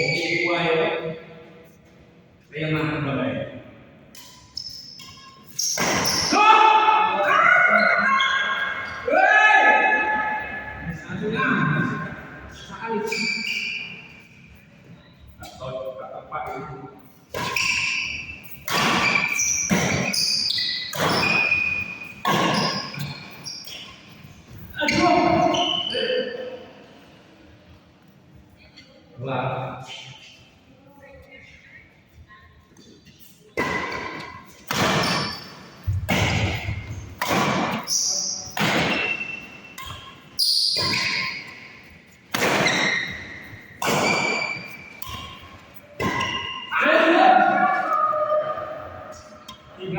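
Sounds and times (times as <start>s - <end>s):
racket hitting shuttlecock: 4.1s - 6.4s, 17.3s - 24.0s, 33.6s - 46.7s
shoes squeaking on court: 4.2s - 6.3s, 7.4s - 9.0s, 11.8s - 15.6s, 16.5s - 26.4s, 32.6s - 46.7s.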